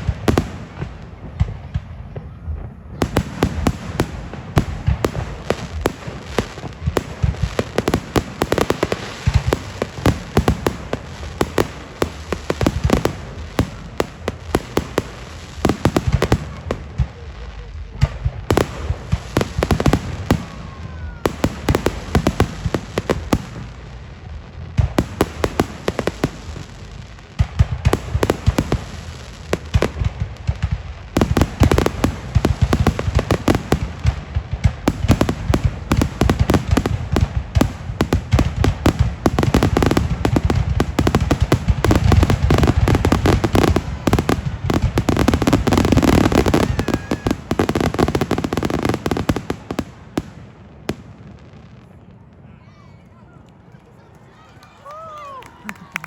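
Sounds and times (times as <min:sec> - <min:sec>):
fireworks bangs and crackling: 0:00.0 - 0:52.5.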